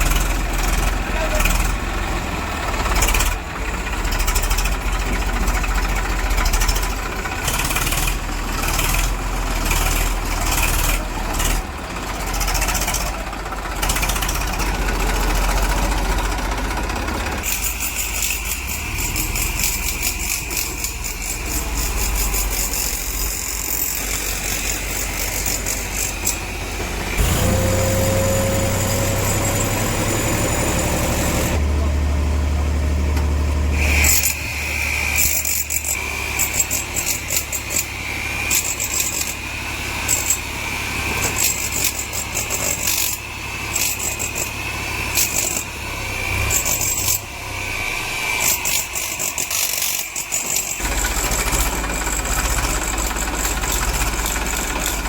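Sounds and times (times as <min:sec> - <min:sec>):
heavy diesel engines rumbling: 0:00.0 - 0:55.0
rising engine whine: 0:21.3 - 0:35.2, 0:45.7 - 0:48.9.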